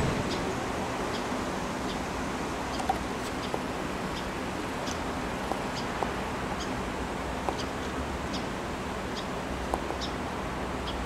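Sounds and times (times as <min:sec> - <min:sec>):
outdoor background noise: 0:00.0 - 0:11.0
small bird chirping: 0:09.9 - 0:10.2.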